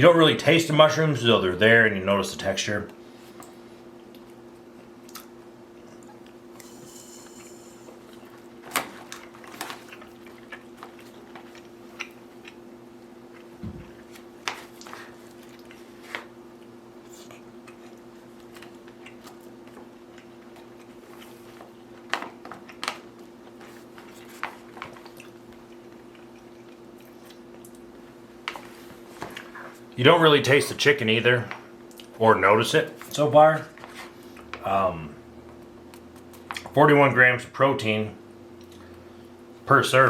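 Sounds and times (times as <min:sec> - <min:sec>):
steady low hum: 0:00.0 - 0:40.0
chewing: 0:09.0 - 0:13.6, 0:14.6 - 0:28.6.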